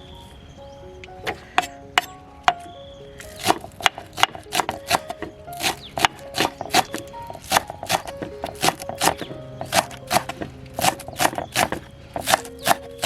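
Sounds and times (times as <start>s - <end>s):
background music: 0.0s - 13.0s
knife chopping on cutting board: 3.4s - 12.9s.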